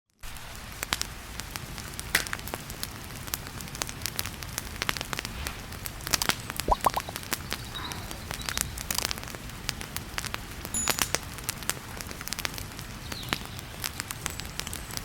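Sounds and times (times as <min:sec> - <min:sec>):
wood fire crackling: 0:02.5 - 0:06.6.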